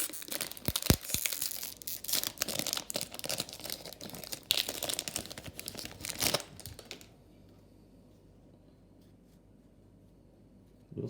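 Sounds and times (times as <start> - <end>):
plastic wrapper crinkling and tearing: 0.0 - 7.1.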